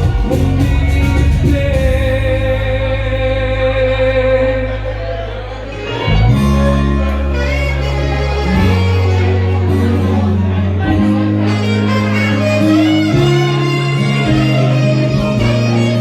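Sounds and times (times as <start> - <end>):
bass-heavy band accompaniment: 0.0 - 16.0.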